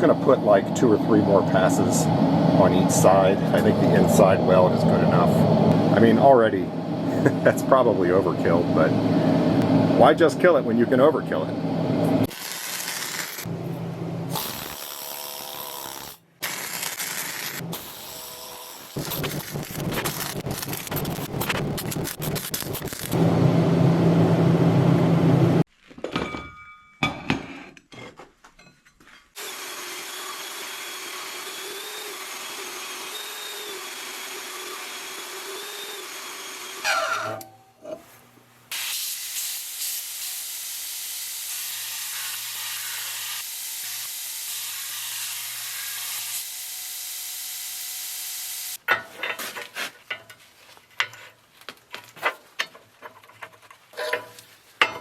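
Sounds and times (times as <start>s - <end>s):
welding crackling hiss: 12.3s - 13.5s, 14.4s - 23.2s, 38.7s - 46.5s.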